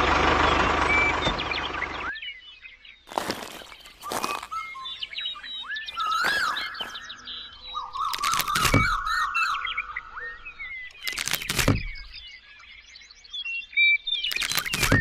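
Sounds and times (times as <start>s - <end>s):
engine running: 0.0s - 2.2s
birds chirping: 0.0s - 15.0s.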